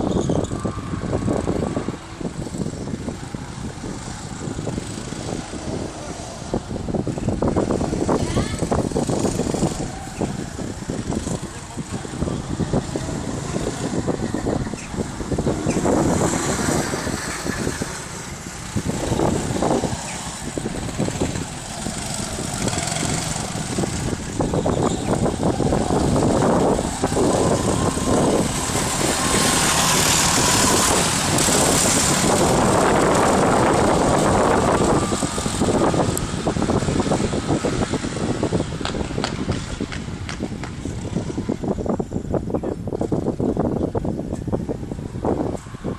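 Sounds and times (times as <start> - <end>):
engine whine: 0.0 - 45.9
go-kart engines running: 0.0 - 45.9.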